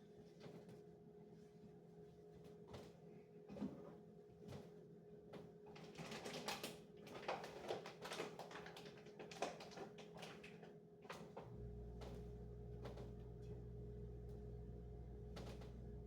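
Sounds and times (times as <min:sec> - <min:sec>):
faint steady hum: 0:11.4 - 0:16.0
low hum: 0:11.5 - 0:16.0.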